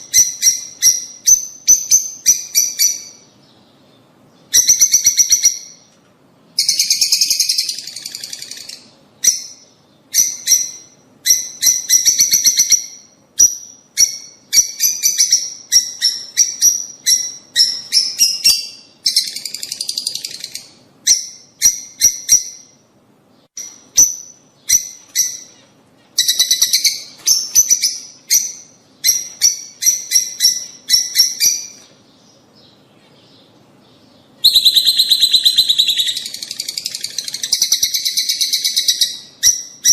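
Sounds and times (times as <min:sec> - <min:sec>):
lovebirds chattering: 0:23.6 - 0:39.9.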